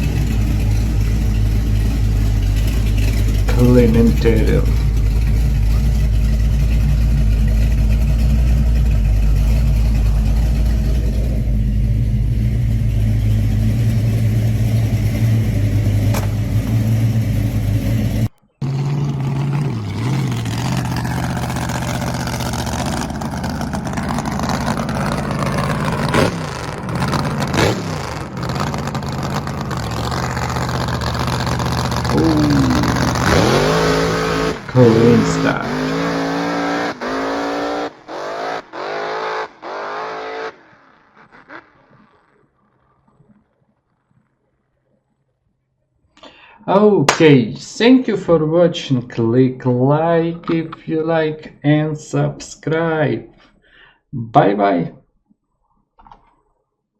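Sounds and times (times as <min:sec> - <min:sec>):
car engine idling and revving: 0:00.0 - 0:43.2.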